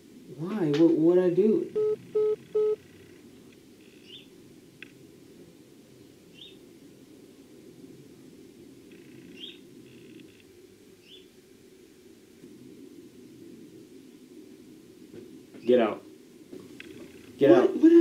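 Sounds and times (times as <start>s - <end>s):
short electronic beeps: 1.8s - 2.8s
faint bird chirps: 3.8s - 4.3s, 6.3s - 6.6s, 8.9s - 10.4s, 11.0s - 11.3s.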